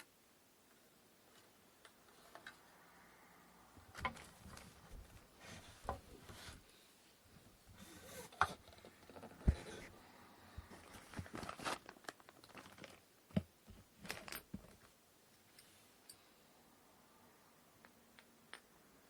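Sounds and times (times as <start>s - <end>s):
rustling: 10.6s - 13.1s.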